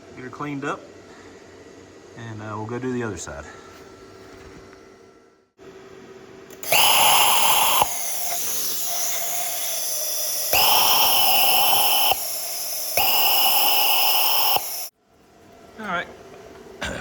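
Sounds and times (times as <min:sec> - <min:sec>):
cutting torch flame hiss: 0:06.6 - 0:14.9
whistling oxygen blasts: 0:06.6 - 0:14.9.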